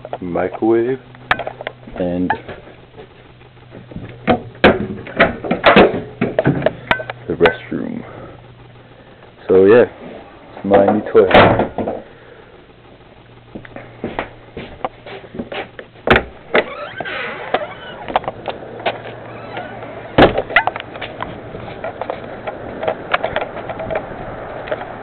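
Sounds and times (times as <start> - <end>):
faint steady hum: 0.0 - 25.0
knocks and clatter: 1.3 - 7.6
loud thumps: 11.3 - 12.0, 16.0 - 18.4, 19.6 - 20.8
short squeaks: 16.6 - 18.2, 19.0 - 20.2.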